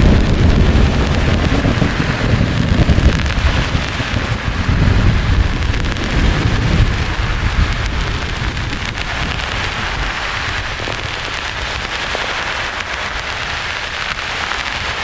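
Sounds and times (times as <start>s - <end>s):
low rumble of thunder: 0.0s - 11.3s
white-noise hiss: 0.0s - 15.0s.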